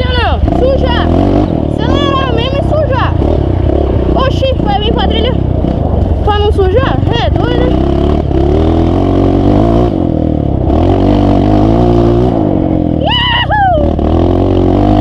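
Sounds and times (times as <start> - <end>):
off-road vehicle engine revving: 0.0 - 15.0
person shouting: 1.8 - 3.1, 12.9 - 14.0.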